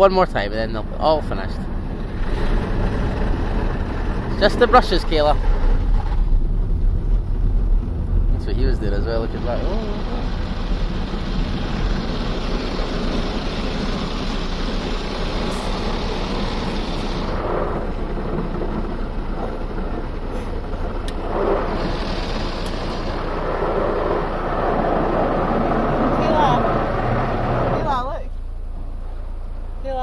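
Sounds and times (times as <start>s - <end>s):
car wash brushes swishing: 9.5s - 27.9s.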